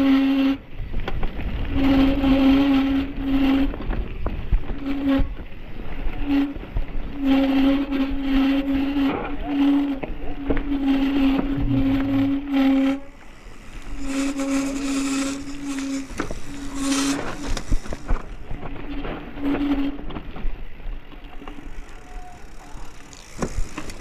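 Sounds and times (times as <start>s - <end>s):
bike freewheel hub buzzing: 0.0s - 24.0s
bike rattles and knocks: 7.7s - 24.0s
wind noise: 11.2s - 12.6s.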